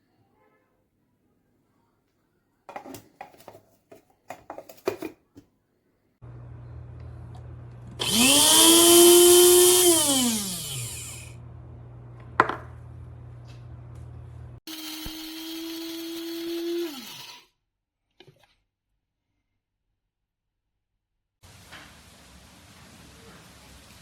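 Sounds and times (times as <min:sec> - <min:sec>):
coffee grinder motor whirring: 0:06.4 - 0:11.8, 0:14.6 - 0:17.5.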